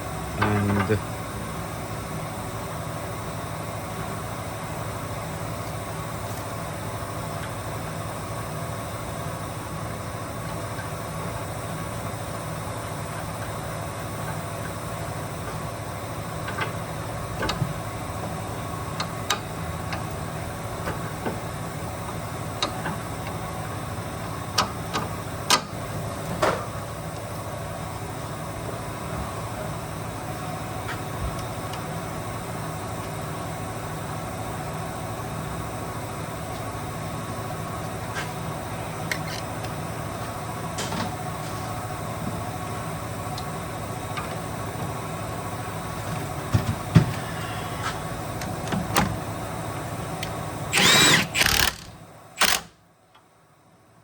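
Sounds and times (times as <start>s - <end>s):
steady mechanical hum: 0.0s - 54.0s.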